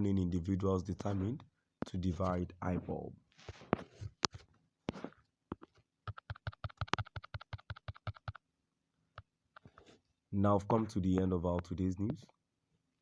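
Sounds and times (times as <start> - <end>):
rapid run of small taps: 3.8 - 8.4.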